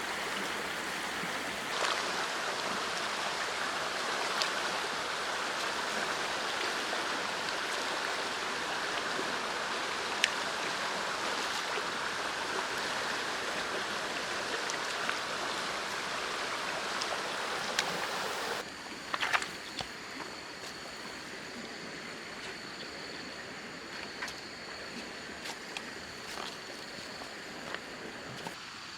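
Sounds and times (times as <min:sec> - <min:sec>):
heavy rain hissing: 0:00.0 - 0:18.6.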